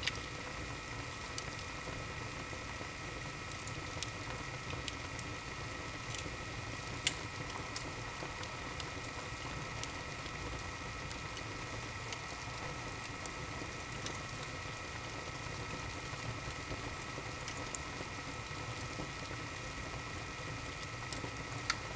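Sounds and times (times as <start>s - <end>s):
wood fire crackling and popping: 0.0s - 21.9s.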